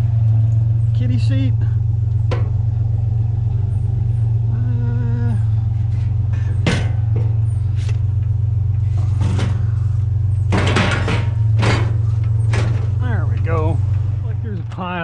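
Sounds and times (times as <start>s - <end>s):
vehicle driving drone: 0.0s - 15.0s
light knocks and rattles: 2.0s - 2.8s, 5.8s - 14.8s.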